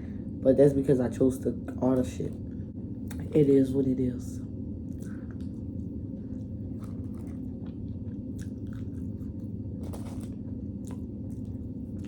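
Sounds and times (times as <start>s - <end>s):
steady low hum: 0.0s - 12.0s
person chewing food: 4.8s - 12.0s.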